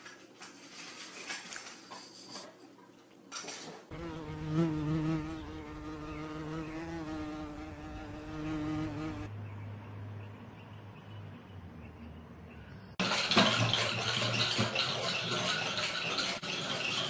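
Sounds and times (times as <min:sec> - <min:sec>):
flying insect buzzing: 0:03.9 - 0:09.3.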